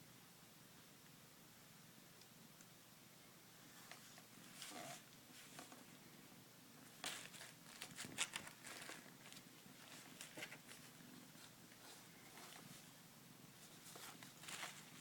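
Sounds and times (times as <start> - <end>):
kitten scratching in a box: 6.8 - 12.9.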